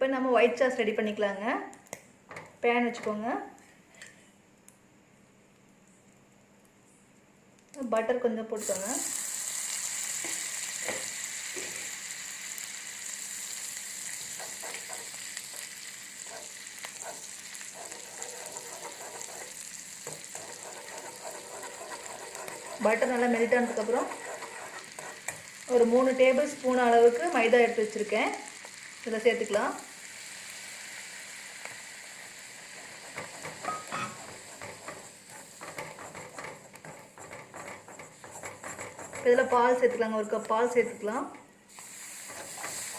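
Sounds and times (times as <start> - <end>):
butter sizzling in a pan: 8.6 - 41.0, 41.7 - 42.9
spoon scraping and knocking pan: 10.2 - 11.9, 14.1 - 26.5, 31.6 - 40.5, 42.2 - 42.9.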